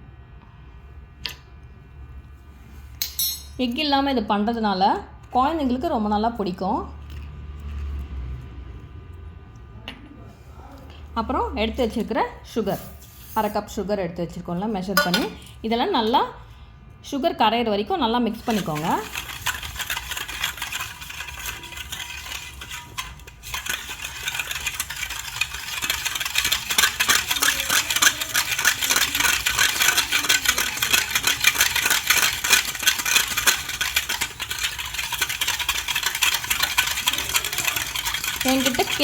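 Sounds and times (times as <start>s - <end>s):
utensil stirring liquid in bowl: 3.4s - 8.9s, 11.2s - 13.9s, 14.5s - 16.4s, 17.8s - 39.0s
utensil scraping bowl sides: 11.7s - 13.7s, 18.3s - 39.0s.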